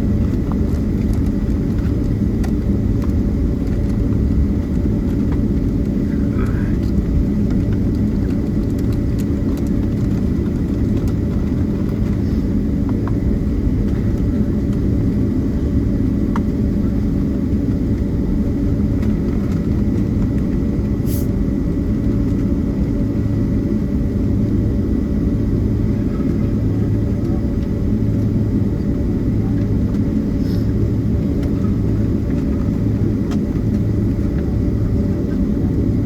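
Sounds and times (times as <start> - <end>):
airplane engines idling: 0.0 - 36.0
low cabin rumble: 0.0 - 36.0.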